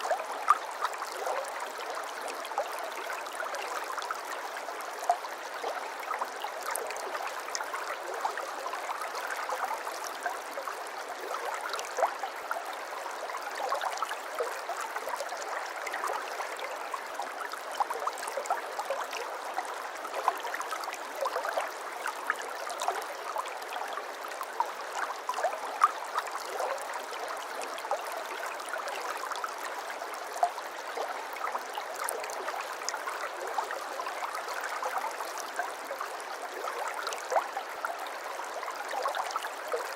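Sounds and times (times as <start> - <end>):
water flowing and babbling: 0.0 - 39.9.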